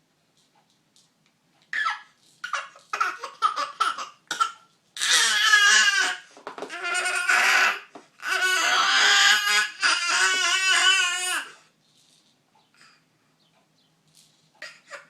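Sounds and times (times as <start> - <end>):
child wailing: 5.0 - 11.6.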